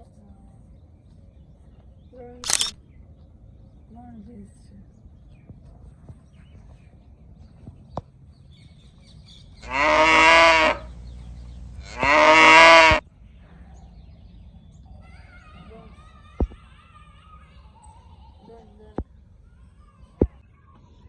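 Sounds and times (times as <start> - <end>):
cow mooing: 11.9 - 13.0.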